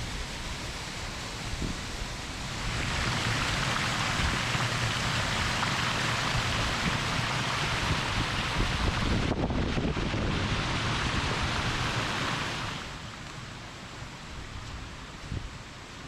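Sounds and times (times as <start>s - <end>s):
waterfall rushing and splashing: 0.0s - 16.0s
wind buffeting microphone: 2.6s - 12.7s.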